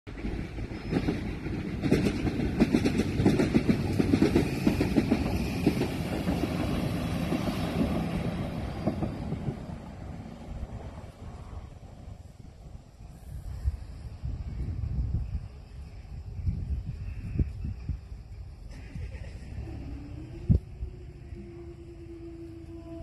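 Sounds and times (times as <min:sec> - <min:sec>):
train wheels clattering over rails: 0:00.1 - 0:10.2.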